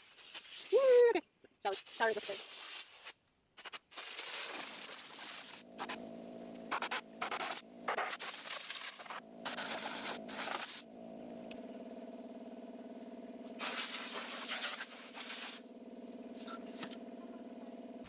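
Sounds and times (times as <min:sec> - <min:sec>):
sandpaper rasping on wood: 0:00.0 - 0:01.1, 0:01.8 - 0:05.6
power sander humming: 0:05.1 - 0:18.0.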